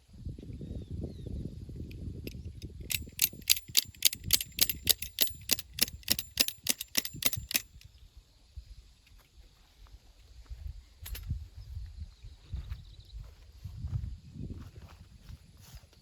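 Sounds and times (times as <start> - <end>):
rapid sharp clicks: 2.6 - 7.8.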